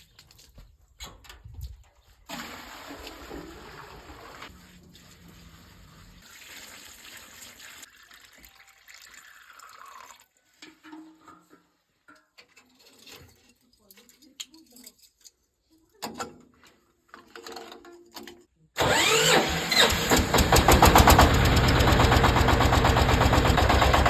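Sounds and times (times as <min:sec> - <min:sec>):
water running into a tank: 0:02.3 - 0:10.6.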